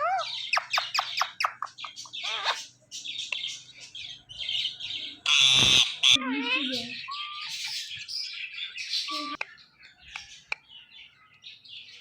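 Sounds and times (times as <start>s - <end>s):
parrot chirping: 0.0s - 9.4s
parrot harsh squawk: 2.2s - 2.7s, 5.2s - 7.6s.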